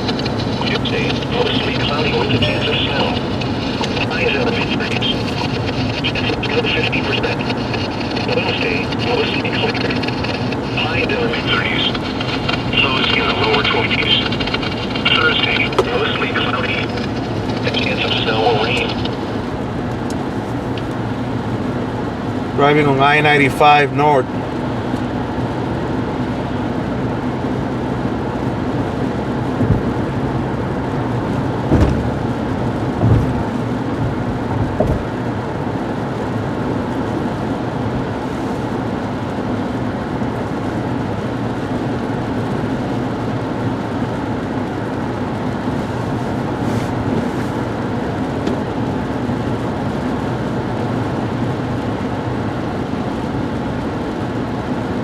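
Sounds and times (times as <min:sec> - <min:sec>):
car road and engine noise: 0:00.0 - 0:55.0
low thumps: 0:29.6 - 0:30.1, 0:31.6 - 0:35.2.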